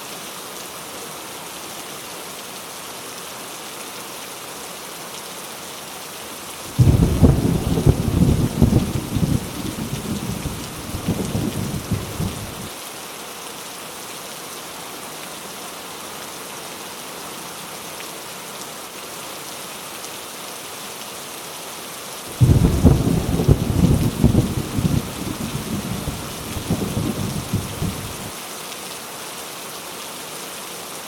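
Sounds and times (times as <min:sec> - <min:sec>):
heavy rain hissing: 0:05.5 - 0:14.0, 0:22.1 - 0:31.0
rolling thunder: 0:06.8 - 0:12.7, 0:22.4 - 0:28.3.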